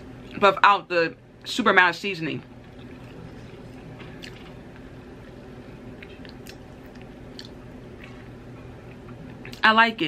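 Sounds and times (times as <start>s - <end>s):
person chewing soft fries: 2.6s - 9.6s.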